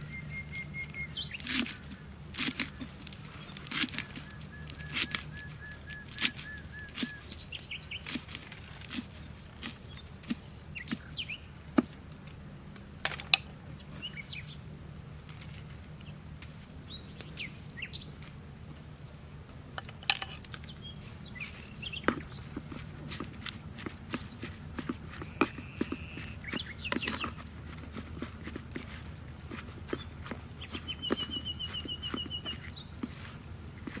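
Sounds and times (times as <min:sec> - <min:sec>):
clicks and knocks from handling: 0:19.7 - 0:20.8.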